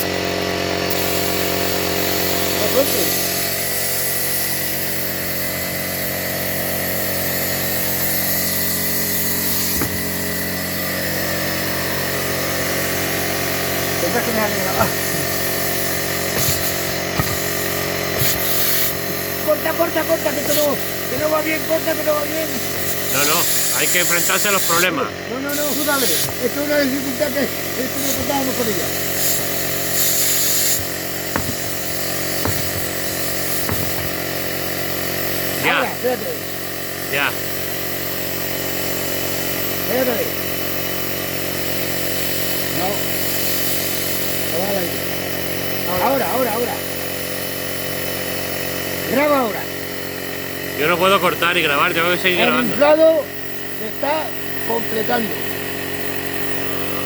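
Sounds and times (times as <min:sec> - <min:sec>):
air compressor humming and hissing: 0:00.0 - 0:57.0
air hiss: 0:07.0 - 0:13.2, 0:14.2 - 0:24.9, 0:25.5 - 0:34.3
brief knock: 0:09.7 - 0:10.0, 0:16.4 - 0:17.5, 0:31.4 - 0:31.8, 0:32.4 - 0:32.9, 0:33.5 - 0:34.2.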